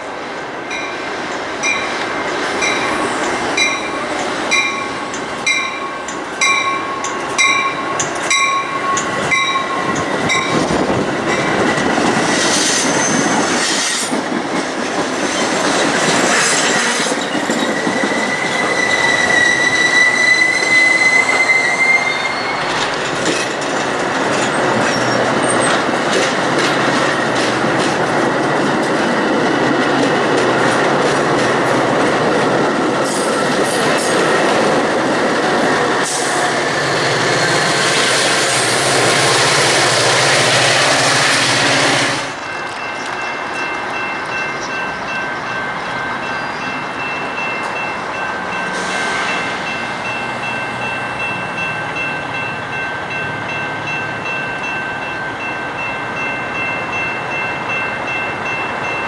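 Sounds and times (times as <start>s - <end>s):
train wheels clacking: 0.0s - 59.0s
wheels squealing on rail: 2.6s - 14.3s, 15.2s - 23.6s, 24.3s - 26.0s, 46.2s - 54.4s.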